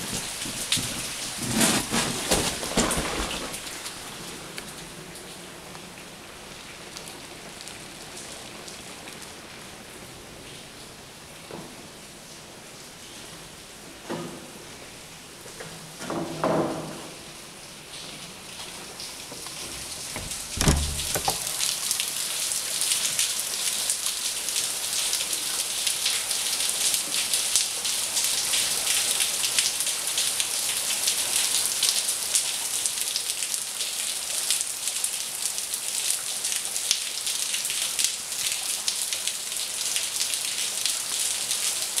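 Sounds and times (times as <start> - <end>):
heavy rain falling: 0.0 - 42.0
low thump: 19.7 - 21.4.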